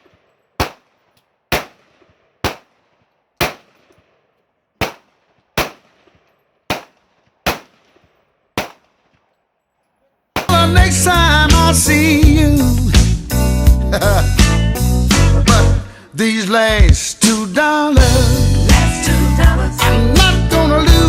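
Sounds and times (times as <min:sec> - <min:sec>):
gunshots with echo: 0:00.0 - 0:04.2, 0:04.8 - 0:09.2, 0:10.4 - 0:10.8.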